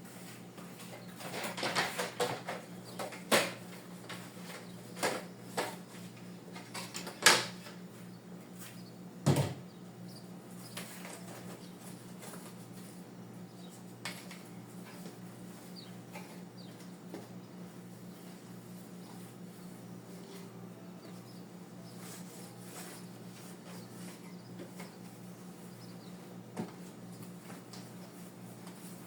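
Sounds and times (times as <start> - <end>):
steady low hum: 0.0 - 29.0
knocks and clunks of objects: 1.2 - 5.8, 9.2 - 9.7.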